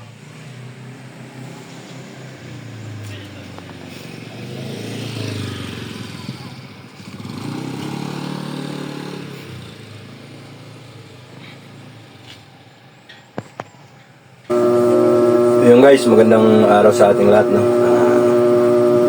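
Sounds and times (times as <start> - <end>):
vehicle engine running: 14.5 - 19.0.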